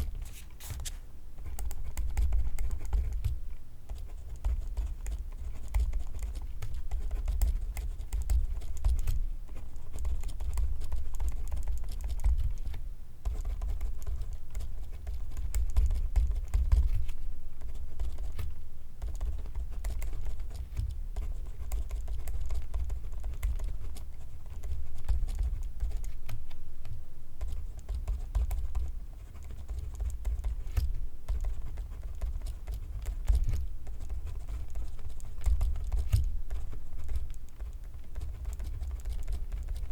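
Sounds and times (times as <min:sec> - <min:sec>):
pencil scratching on paper: 0:27.5 - 0:39.9.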